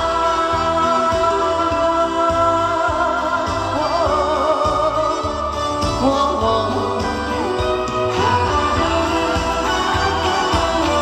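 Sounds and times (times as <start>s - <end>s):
live band music: 0.0s - 11.0s
steady bass beat: 0.0s - 11.0s
vibrato melody line: 0.0s - 11.0s.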